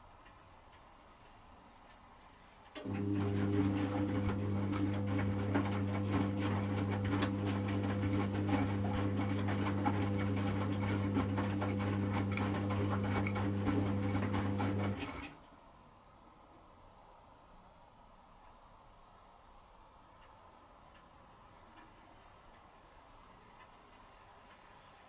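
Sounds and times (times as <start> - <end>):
washing machine motor humming: 2.8 - 15.4.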